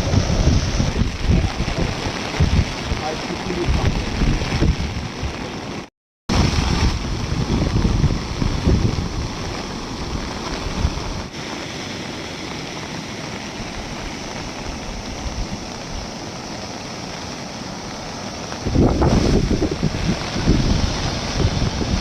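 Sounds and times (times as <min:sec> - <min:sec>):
wind buffeting microphone: 0:00.0 - 0:05.7, 0:06.3 - 0:11.3, 0:18.5 - 0:22.0
floodwater rushing: 0:00.0 - 0:22.0.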